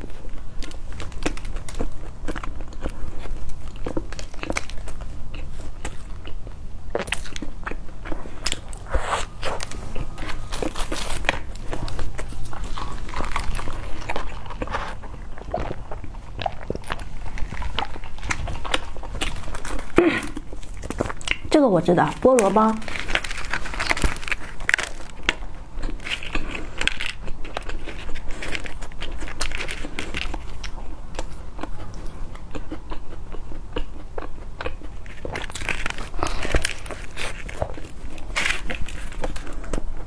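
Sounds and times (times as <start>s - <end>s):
chewing crunchy bread bun: 0.0s - 40.0s
wet mouth sounds: 8.4s - 10.2s.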